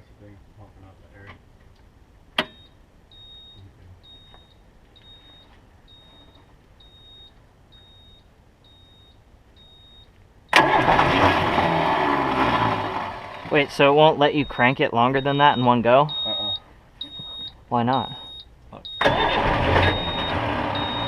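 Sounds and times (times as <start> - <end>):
high beeps: 2.5 - 10.1, 13.4 - 19.1, 19.8 - 21.0
starter cranking diesel engine: 10.5 - 13.8, 18.9 - 21.0.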